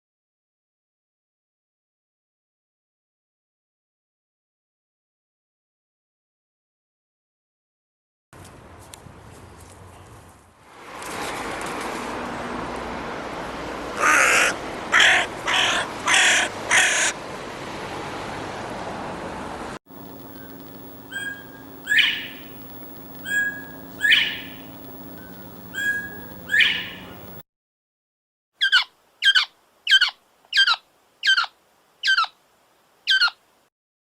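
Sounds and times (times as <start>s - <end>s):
harsh bird calls: 14.0s - 17.2s, 20.0s - 27.4s
steady rushing background: 19.9s - 27.4s
short bird calls with falling sweep: 20.1s - 27.4s.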